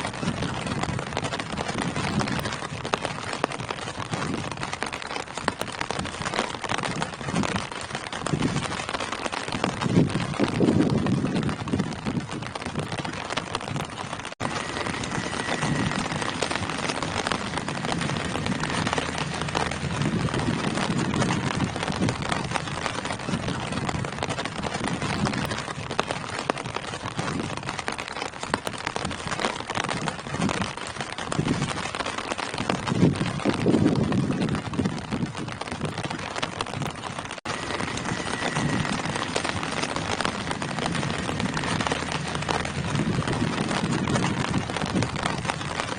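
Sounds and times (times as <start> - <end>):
rain falling on leaves: 0.0 - 45.9
low rumble: 14.4 - 24.2, 37.5 - 45.8.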